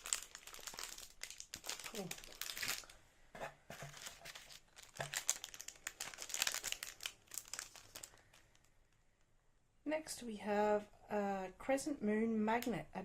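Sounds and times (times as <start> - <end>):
packaging crinkling: 0.0 - 3.0, 3.7 - 9.0.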